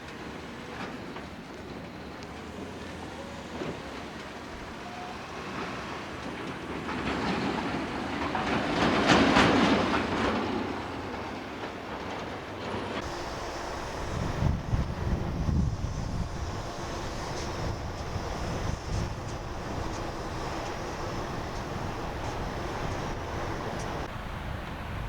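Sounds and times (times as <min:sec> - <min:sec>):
heavy vehicle passing: 0:13.0 - 0:24.1
wind buffeting microphone: 0:13.0 - 0:25.0.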